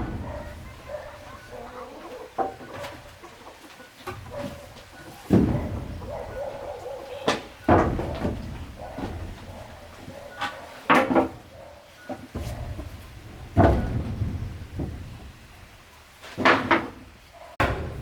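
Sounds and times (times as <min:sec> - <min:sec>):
heavy knocks: 0:00.0 - 0:01.7, 0:05.3 - 0:09.8, 0:17.6 - 0:18.0.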